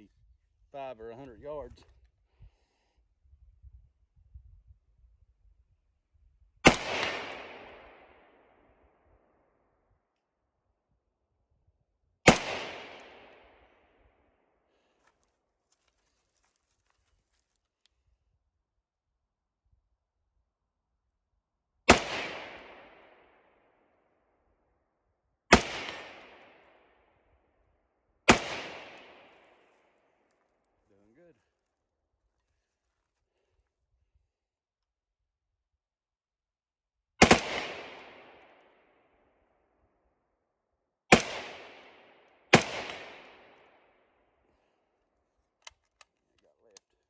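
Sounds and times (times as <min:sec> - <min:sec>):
rifle shots with echo: 0:06.6 - 0:08.7, 0:12.3 - 0:13.9, 0:21.9 - 0:23.7, 0:25.5 - 0:27.1, 0:28.3 - 0:29.9, 0:37.2 - 0:39.0, 0:41.1 - 0:44.1.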